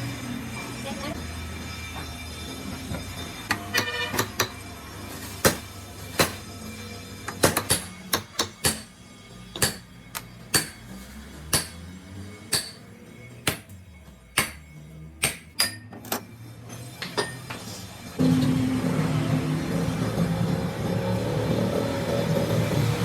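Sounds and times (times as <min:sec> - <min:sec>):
machine running loudly: 0:17.9 - 0:23.0.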